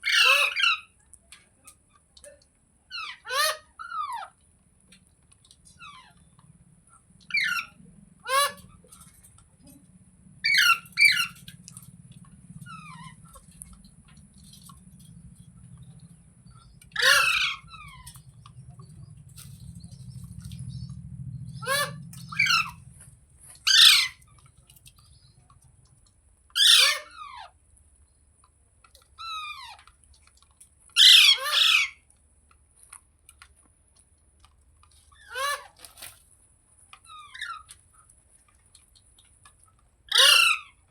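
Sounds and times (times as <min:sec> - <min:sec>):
parakeet screeching: 0:00.0 - 0:00.8, 0:07.3 - 0:08.8, 0:10.4 - 0:11.6, 0:15.9 - 0:18.9, 0:21.5 - 0:22.9, 0:23.5 - 0:24.4, 0:26.6 - 0:27.4, 0:31.0 - 0:32.0, 0:40.1 - 0:40.7.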